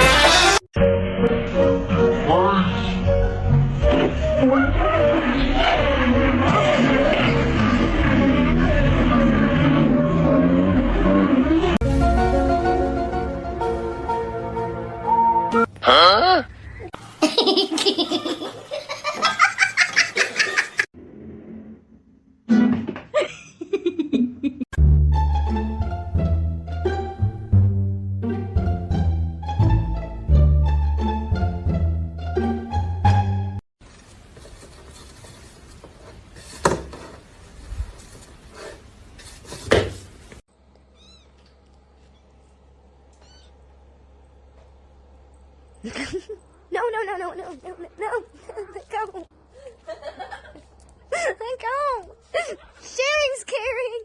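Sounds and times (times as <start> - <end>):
light music: 11.8 - 15.7, 24.8 - 33.6
people laughing: 17.2 - 20.9
cat meowing: 41.0 - 41.4, 43.2 - 43.6.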